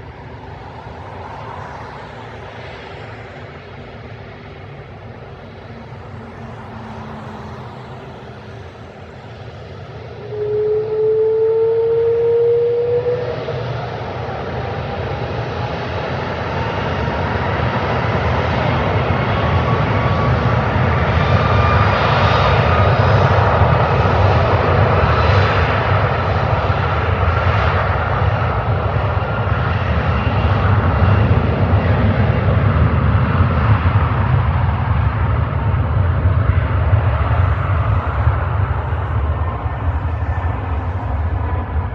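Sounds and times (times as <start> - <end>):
faint rising whine: 0.0 - 15.2, 34.2 - 41.9
jet engines roaring: 0.0 - 41.9.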